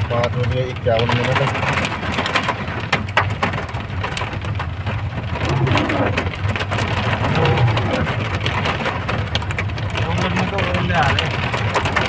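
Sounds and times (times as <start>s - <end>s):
hailstones ticking on surfaces: 0.0s - 12.0s
low rumble: 4.6s - 10.3s
heavy rain hissing: 5.3s - 9.1s.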